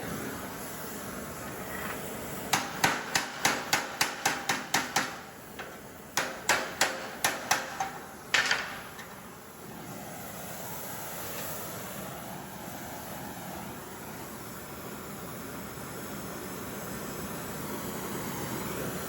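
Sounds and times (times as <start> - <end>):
hammer striking metal on anvil: 2.5 - 8.9.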